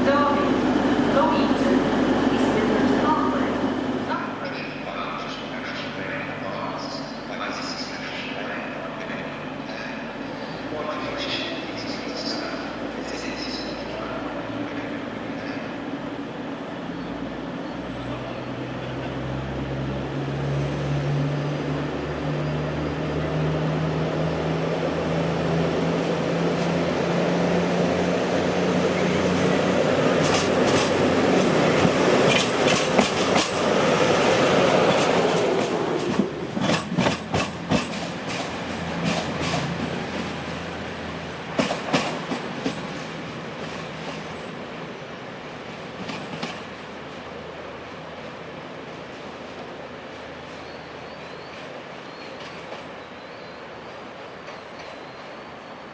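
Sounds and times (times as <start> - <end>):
diesel train engine passing: 0.0 - 55.9
train wheels clacking over rail joints: 29.3 - 33.9, 34.7 - 40.5, 41.5 - 44.5, 46.0 - 46.8.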